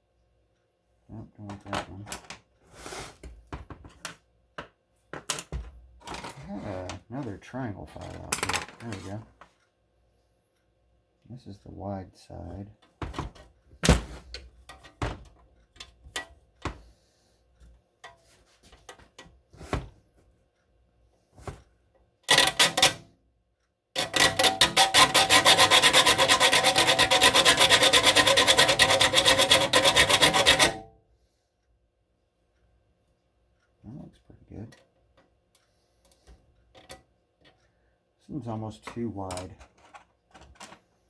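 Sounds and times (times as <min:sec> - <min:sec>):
file rasping on saw teeth: 0:24.0 - 0:30.8.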